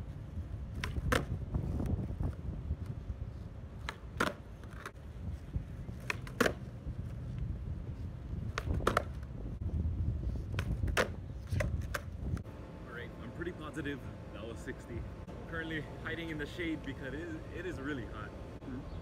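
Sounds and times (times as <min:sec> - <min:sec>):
skateboard popping and clacking: 0:00.7 - 0:01.4, 0:03.8 - 0:05.0, 0:06.0 - 0:06.7, 0:08.5 - 0:09.3, 0:10.5 - 0:12.2.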